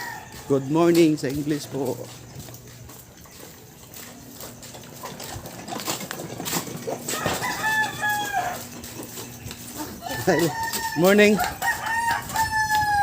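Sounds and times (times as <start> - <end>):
rooster crowing: 0.0 - 1.1, 7.1 - 8.8, 9.8 - 13.0.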